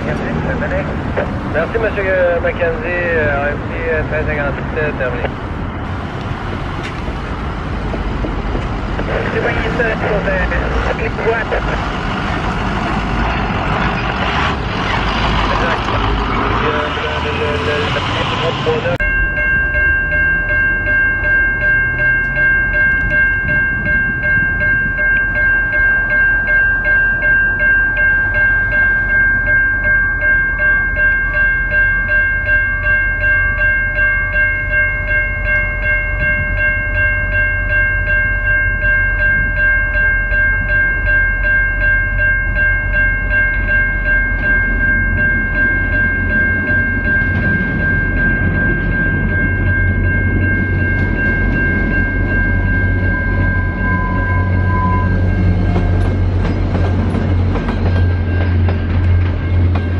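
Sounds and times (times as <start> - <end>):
train rumbling past: 0.0 - 59.9
level crossing bell ringing: 19.0 - 56.2.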